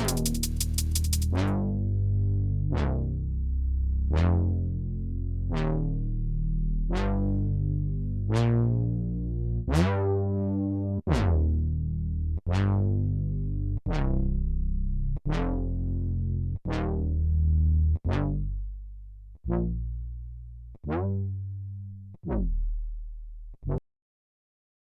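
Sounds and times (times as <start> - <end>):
bright synth stabs: 0.0 - 1.4.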